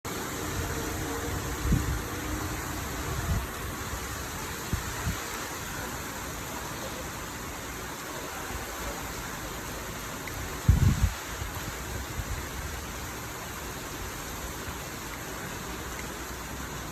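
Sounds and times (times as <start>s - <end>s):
steady rain falling: 0.1s - 16.9s.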